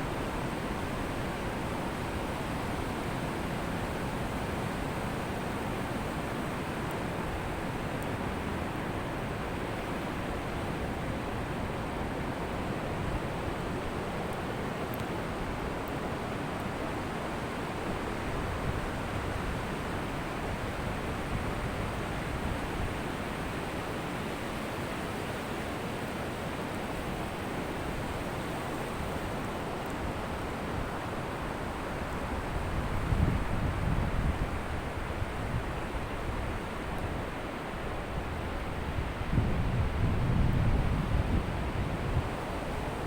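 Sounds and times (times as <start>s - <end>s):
wind on microphone: 38.8s - 43.0s.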